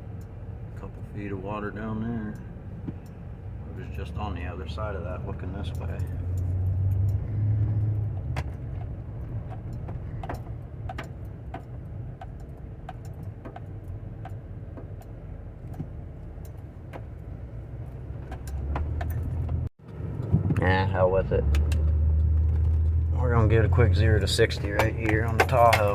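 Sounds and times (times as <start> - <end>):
car engine and road hum: 0.0 - 25.9
light ticks and rattles: 5.3 - 20.6, 24.2 - 25.9.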